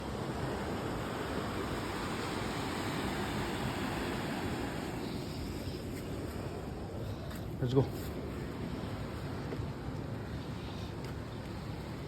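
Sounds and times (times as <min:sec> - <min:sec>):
ocean surf rushing: 0:00.0 - 0:07.0.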